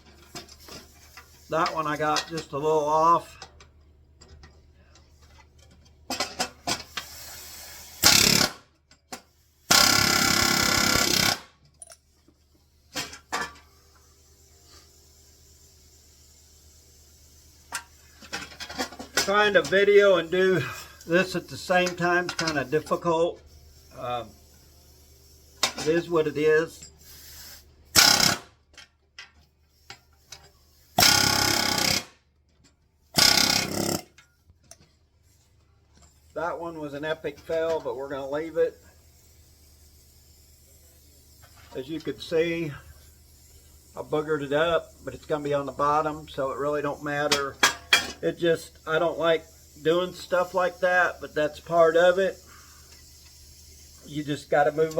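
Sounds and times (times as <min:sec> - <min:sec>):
pneumatic rivet gun bursts: 0:06.1 - 0:21.2, 0:21.8 - 0:26.0, 0:26.8 - 0:32.4, 0:33.0 - 0:35.4, 0:38.8 - 0:41.8, 0:42.8 - 0:44.0, 0:47.0 - 0:54.1
air hammer driving rivet: 0:06.3 - 0:11.6, 0:26.8 - 0:28.8, 0:29.8 - 0:32.2, 0:33.2 - 0:34.8.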